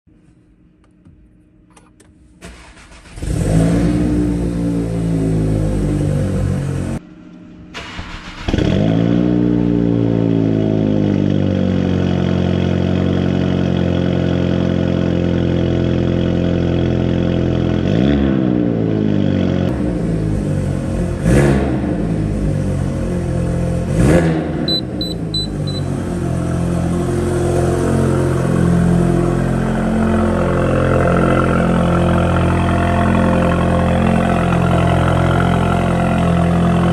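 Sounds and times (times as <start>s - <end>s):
car engine starting and idling: 0.6s - 36.9s
engine throttle blips: 19.7s - 36.9s.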